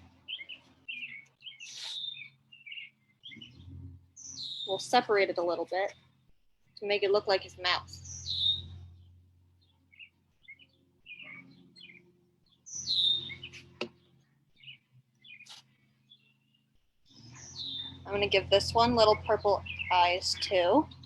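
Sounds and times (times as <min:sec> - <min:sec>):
songbirds chirping: 0:00.0 - 0:21.0
downward-sliding bird whistles: 0:00.3 - 0:04.7, 0:08.0 - 0:08.9, 0:12.7 - 0:13.6.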